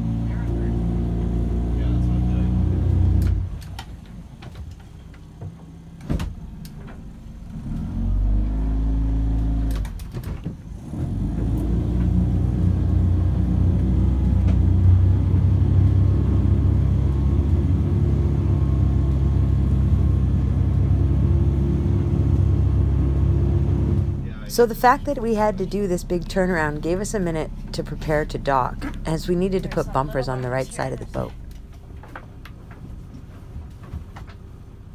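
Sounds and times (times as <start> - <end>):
boat engine running: 11.0 - 33.6.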